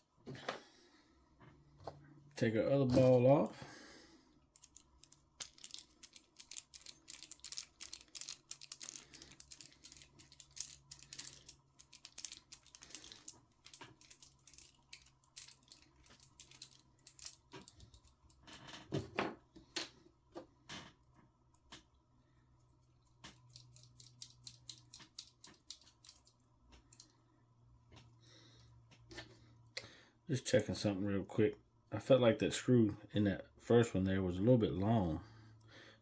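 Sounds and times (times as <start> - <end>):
small parts clattering: 4.4 - 20.0, 23.2 - 27.1.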